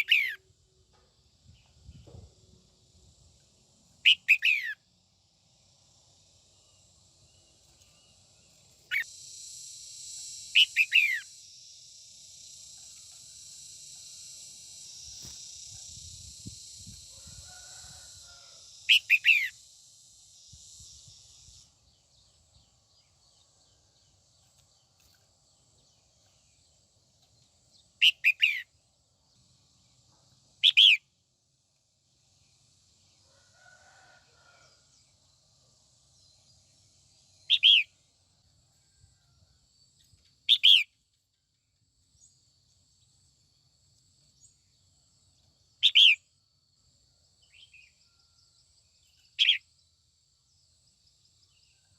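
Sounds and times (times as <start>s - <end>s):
bulbul calling: 0.0s - 0.4s, 4.0s - 4.8s, 8.9s - 9.1s, 10.6s - 11.3s, 28.0s - 28.7s
steady high hiss: 2.9s - 23.1s.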